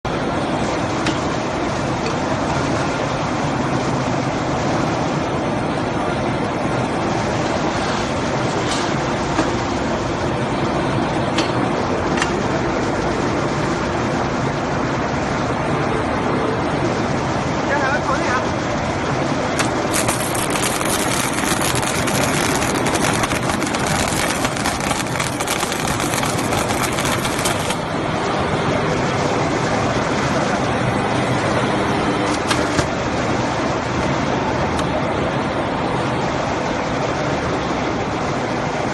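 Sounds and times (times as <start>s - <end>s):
steady electrical hum: 0.1s - 38.9s
welding machine crackling: 19.6s - 27.9s.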